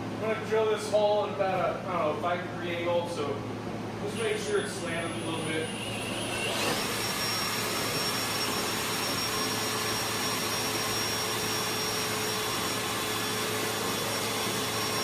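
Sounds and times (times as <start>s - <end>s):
power drill cutting into wall: 4.2s - 15.0s.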